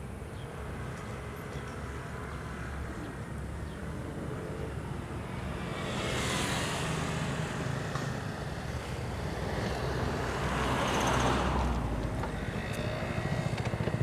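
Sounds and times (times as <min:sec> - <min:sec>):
vehicle whooshing past: 0:05.4 - 0:13.4.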